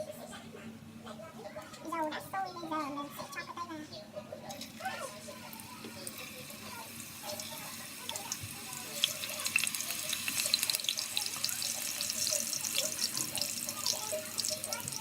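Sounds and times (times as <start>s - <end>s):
potatoes frying in hot oil: 4.5s - 15.0s.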